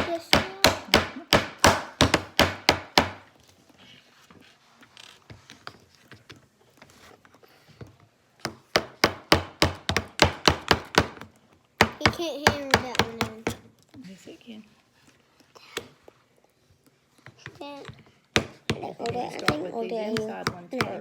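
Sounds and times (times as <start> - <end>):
hammer striking nail into wood: 0.0 - 3.3, 8.4 - 13.6.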